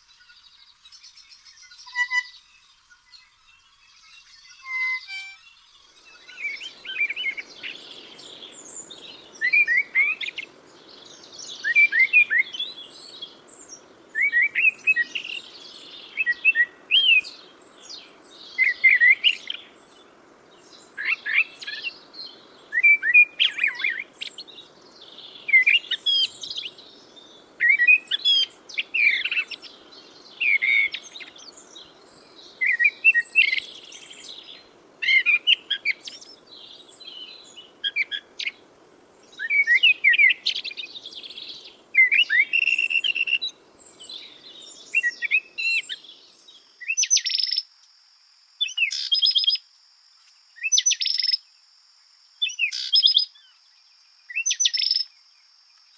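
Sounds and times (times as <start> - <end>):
small bird chirping: 0.0 - 19.7, 39.2 - 47.7, 48.6 - 49.6, 50.5 - 51.4, 52.4 - 53.6, 54.3 - 55.2
steady low hiss: 0.0 - 55.9.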